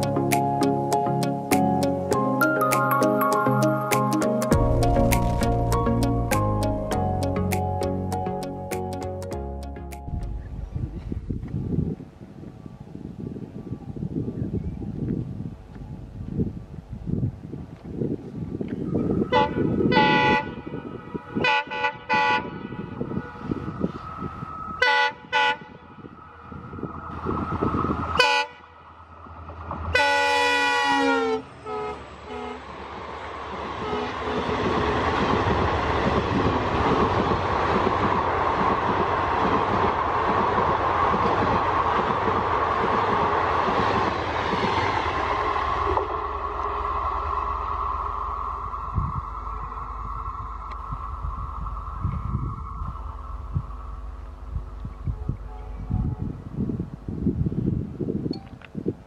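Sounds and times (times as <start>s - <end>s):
locomotive engine rumble: 3.2s - 21.1s, 22.7s - 58.2s
locomotive horn toots and blast: 19.2s - 23.8s, 24.8s - 26.1s, 28.2s - 28.8s, 29.9s - 32.8s, 33.8s - 34.8s, 55.1s - 56.5s
train wheels rattling on rails: 32.0s - 47.7s.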